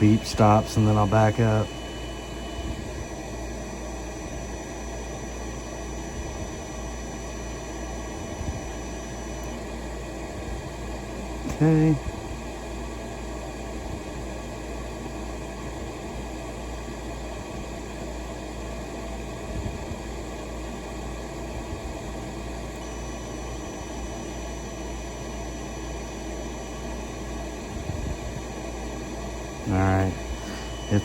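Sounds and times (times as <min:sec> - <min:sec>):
faint high steady tone: 0:00.0 - 0:03.2, 0:29.7 - 0:31.0
fan whirring: 0:00.0 - 0:31.0.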